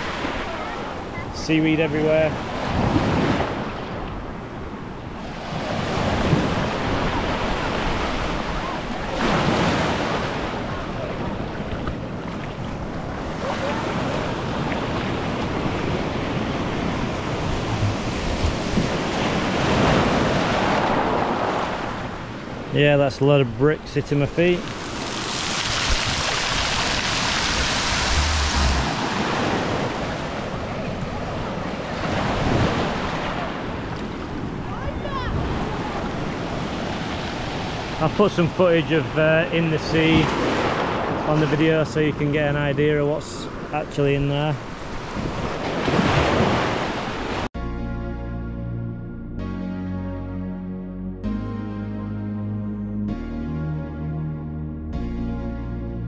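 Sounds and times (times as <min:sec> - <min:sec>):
waves breaking on rocky shore: 0:05.2 - 0:22.7, 0:24.4 - 0:38.5
wind buffeting microphone: 0:10.8 - 0:19.5, 0:24.7 - 0:31.9.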